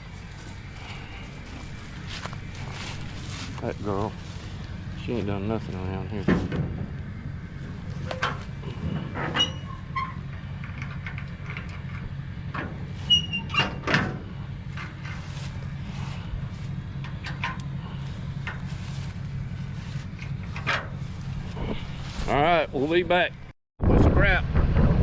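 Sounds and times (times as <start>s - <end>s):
vehicle engine idling: 0.0s - 23.5s
knocks and clatter: 5.6s - 22.1s.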